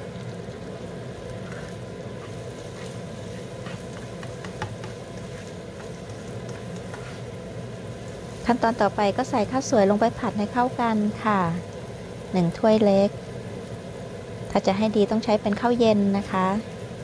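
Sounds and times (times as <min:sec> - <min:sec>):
food sizzling in a wok: 0:00.0 - 0:17.0
spatula scraping and tapping pan: 0:01.4 - 0:07.3.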